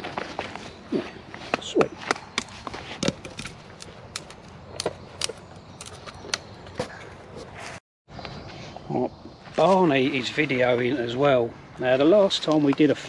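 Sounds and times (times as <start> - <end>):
twigs cracking and snapping: 2.0 - 7.6.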